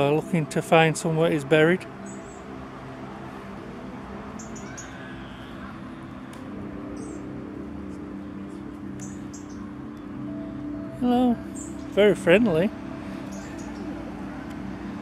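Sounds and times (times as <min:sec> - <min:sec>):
high-pitched bird chirps: 0:04.4 - 0:05.7, 0:06.9 - 0:07.3, 0:09.0 - 0:09.8, 0:11.3 - 0:12.1, 0:13.2 - 0:14.0.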